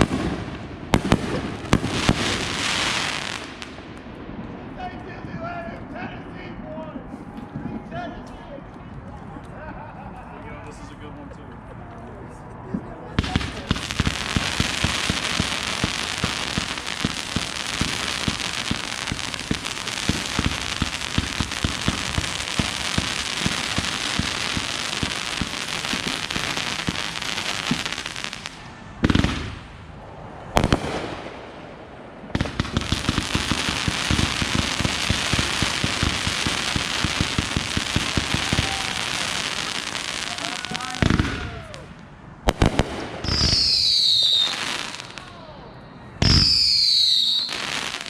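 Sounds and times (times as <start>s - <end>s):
fireworks crackling: 0.0s - 5.1s, 13.2s - 45.6s, 46.2s - 48.0s
sharp firework bangs: 13.2s - 29.8s, 30.6s - 41.8s, 42.5s - 45.2s, 46.2s - 48.0s.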